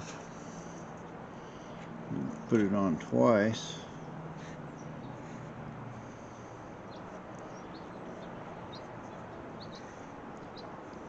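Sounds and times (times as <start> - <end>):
steady background noise: 0.0 - 11.0
small bird chirping: 6.4 - 11.0.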